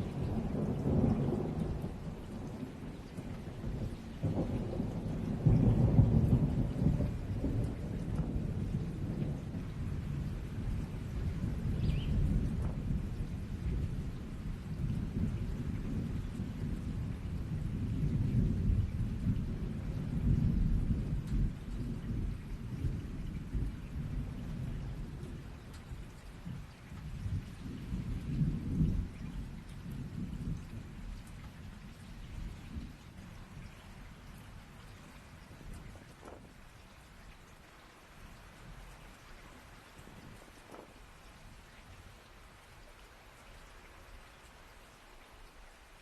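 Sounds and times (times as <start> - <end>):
rolling thunder: 0.0 - 33.7
steady rain: 0.0 - 46.0.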